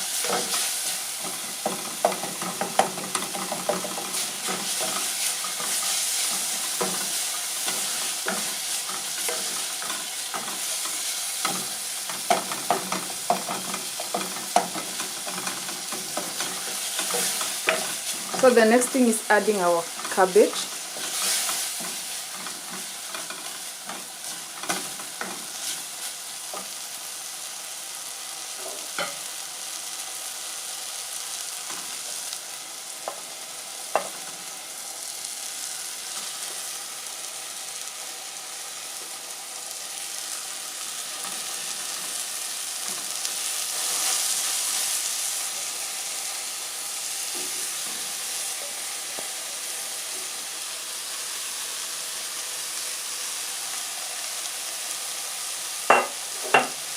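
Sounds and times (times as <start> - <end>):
cabbage sizzling in a pan: 0.0 - 56.9.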